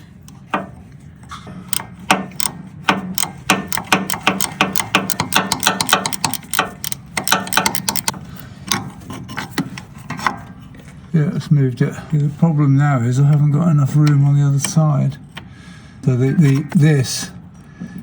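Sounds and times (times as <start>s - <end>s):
ratchet wrench clicking: 1.7s - 2.5s, 3.2s - 8.2s.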